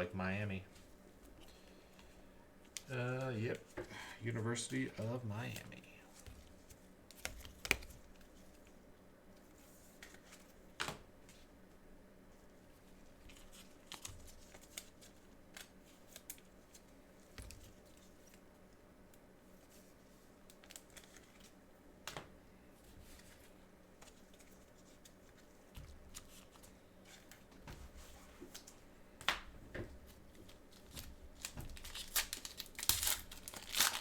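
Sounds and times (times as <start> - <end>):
faint hum: 0.0 - 34.0
cards and wrappers rustling: 4.4 - 8.6, 20.5 - 21.6, 30.2 - 34.0.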